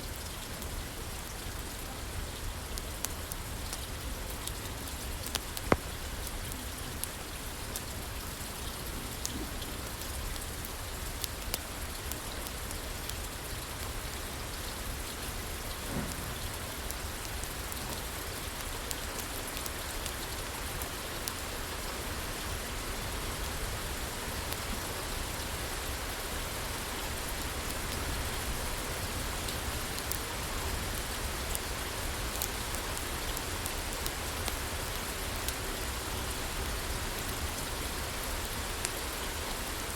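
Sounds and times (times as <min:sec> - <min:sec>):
rain on a roof: 0:00.0 - 0:39.9
wood fire crackling: 0:02.7 - 0:14.0, 0:24.3 - 0:36.0.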